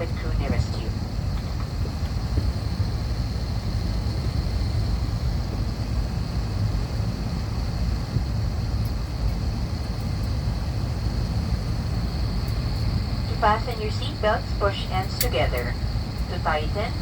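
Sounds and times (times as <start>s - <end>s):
aircraft cabin rumble: 0.0s - 17.0s
thin high whine: 11.8s - 17.0s.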